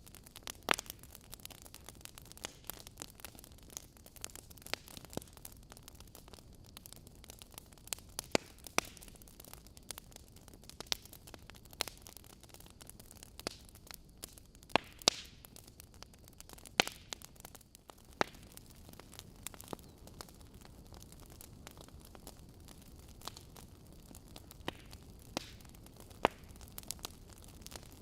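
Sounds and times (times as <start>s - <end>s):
fire crackling and popping: 0.0s - 28.0s
soft steady hiss: 0.0s - 28.0s.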